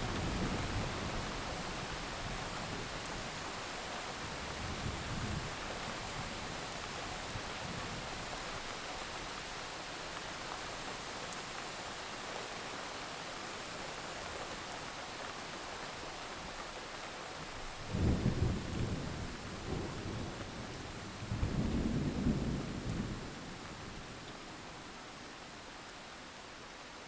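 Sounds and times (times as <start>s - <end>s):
steady rain hissing: 0.0s - 27.0s
rolling thunder: 18.0s - 23.5s.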